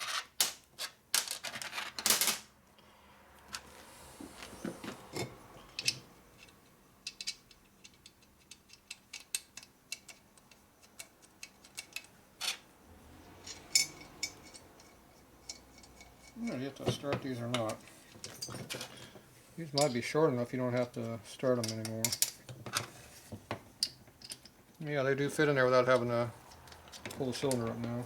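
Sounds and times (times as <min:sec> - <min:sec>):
small metal parts clattering: 0:00.0 - 0:02.5, 0:04.8 - 0:12.6, 0:13.2 - 0:19.2, 0:21.5 - 0:23.0, 0:23.8 - 0:24.6, 0:25.7 - 0:28.0.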